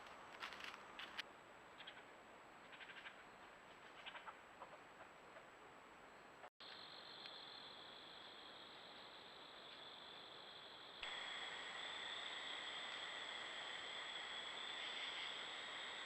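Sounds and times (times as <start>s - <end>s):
high insect drone: 6.6s - 16.0s.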